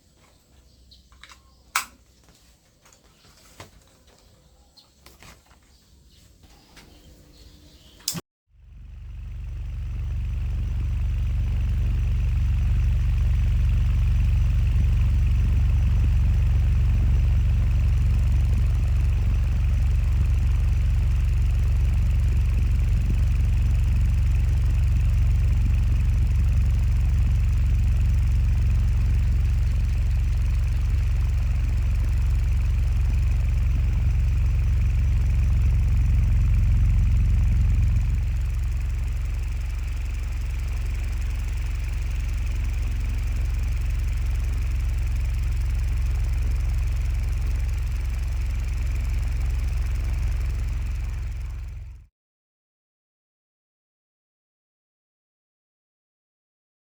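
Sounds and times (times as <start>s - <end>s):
ceiling fan hum and whir: 10.0s - 51.7s.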